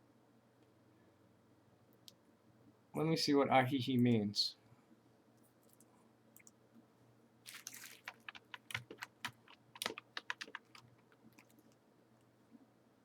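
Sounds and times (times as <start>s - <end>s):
keyboard key clicks: 8.1s - 10.8s.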